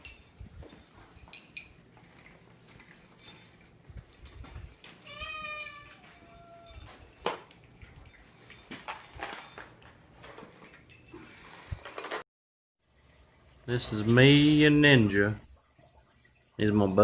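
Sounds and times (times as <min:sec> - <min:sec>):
cat meowing: 0:05.0 - 0:06.8.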